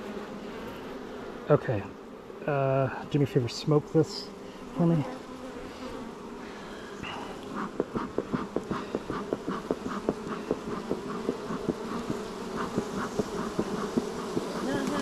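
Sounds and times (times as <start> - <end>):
honeybees buzzing: 0.0 - 15.0
rapid irregular ticks: 7.4 - 15.0.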